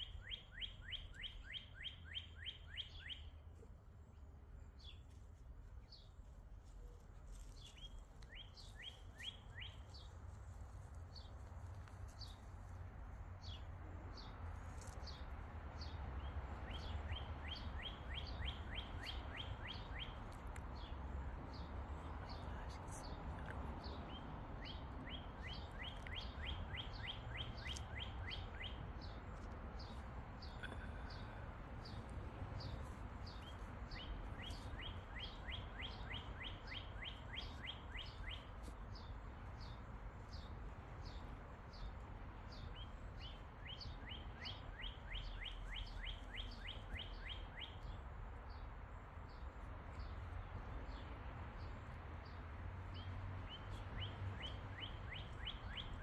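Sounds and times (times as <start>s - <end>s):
songbird singing fast trill: 0.0s - 3.3s, 24.1s - 28.8s.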